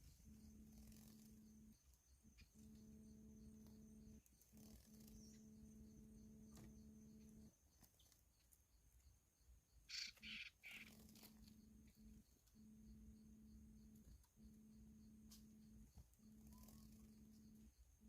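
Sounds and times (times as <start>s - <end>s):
bird harsh calls: 9.9s - 11.3s.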